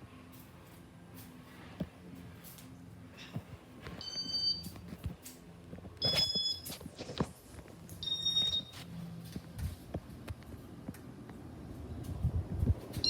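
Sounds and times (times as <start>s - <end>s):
short high-pitched beeps: 6.0s - 6.7s, 8.0s - 8.8s.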